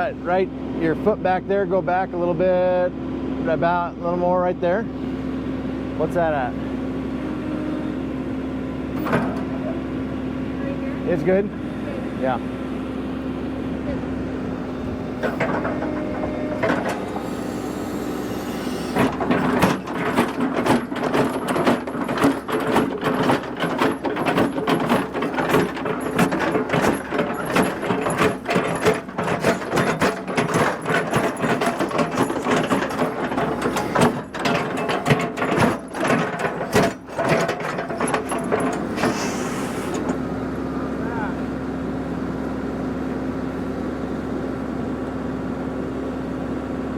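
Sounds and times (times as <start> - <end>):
machine engine running: 5.9 - 41.6
rattling and clattering: 15.2 - 17.3, 18.8 - 40.2.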